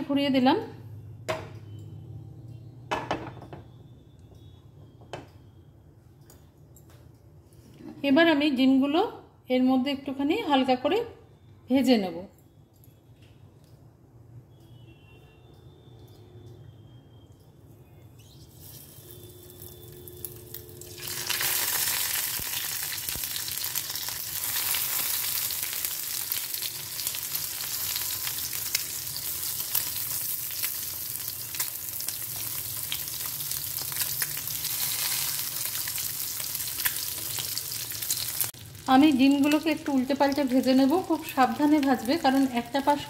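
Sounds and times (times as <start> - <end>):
eggs sizzling in oil: 18.4 - 43.0.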